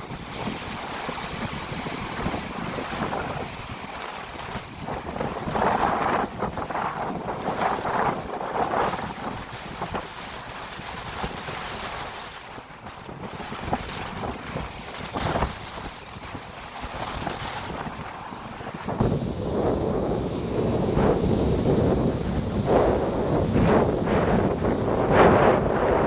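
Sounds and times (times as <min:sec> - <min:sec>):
wind buffeting microphone: 0:00.0 - 0:26.0
sea waves breaking: 0:08.8 - 0:26.0.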